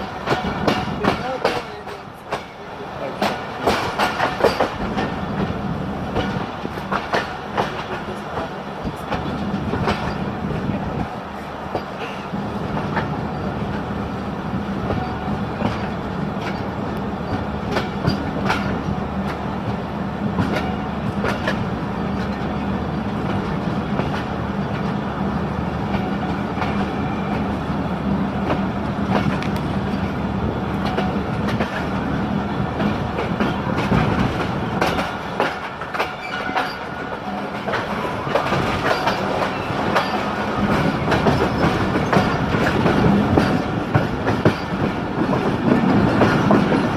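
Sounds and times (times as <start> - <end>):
train wheels clattering over rail joints: 0.0 - 46.9.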